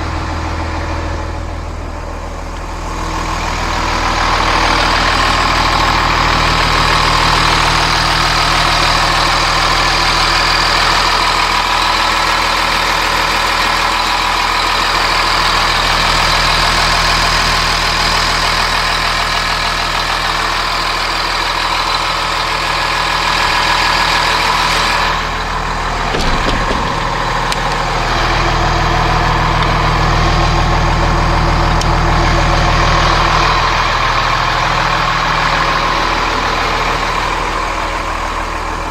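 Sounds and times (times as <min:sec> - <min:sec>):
diesel engine idling: 0:00.0 - 0:38.9
short knock: 0:26.1 - 0:27.7.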